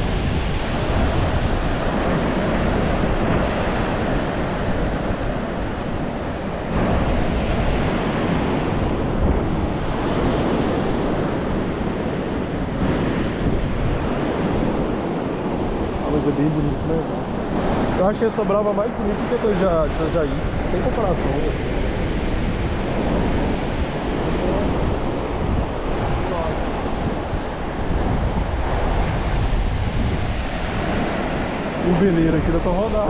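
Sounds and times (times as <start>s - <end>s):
sea surf washing on a beach: 0.0s - 33.0s
wind buffeting the microphone: 0.0s - 33.0s.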